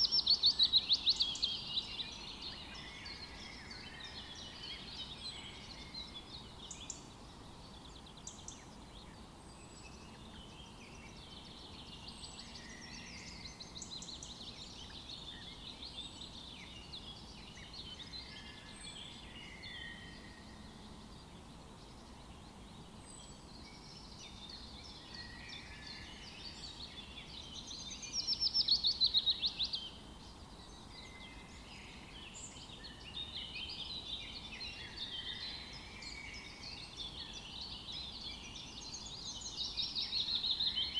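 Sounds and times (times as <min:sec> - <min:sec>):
faint steady hiss: 0:00.0 - 0:40.9
songbirds singing: 0:00.0 - 0:40.9.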